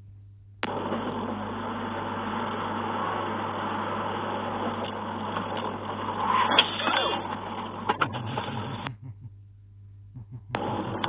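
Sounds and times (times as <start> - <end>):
click: 10.5 - 11.0.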